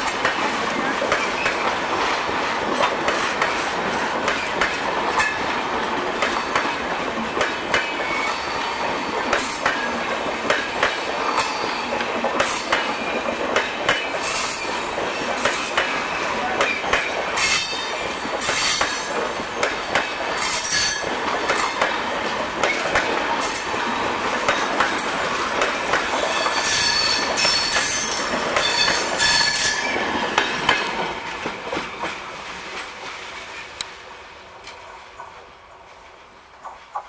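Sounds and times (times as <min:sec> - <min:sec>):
train rumbling past: 0:00.0 - 0:37.0
wheel squeal: 0:26.3 - 0:30.0.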